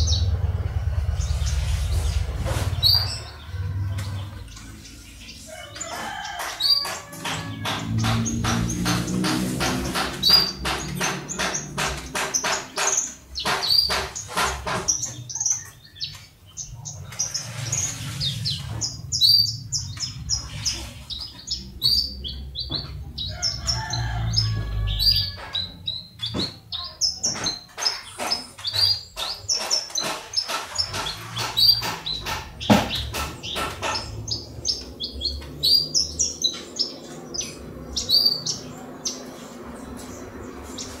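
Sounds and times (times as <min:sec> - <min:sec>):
low rumble: 0:00.0 - 0:05.5.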